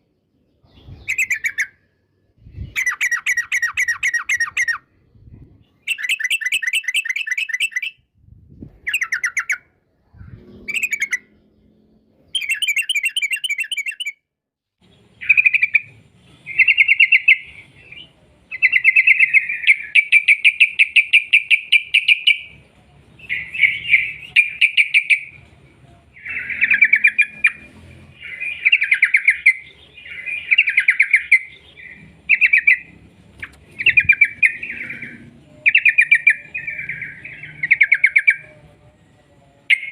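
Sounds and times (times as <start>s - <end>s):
bird singing fast chattering trills: 5.8s - 8.0s, 10.3s - 11.7s, 12.4s - 14.2s, 23.3s - 25.4s, 26.2s - 38.6s.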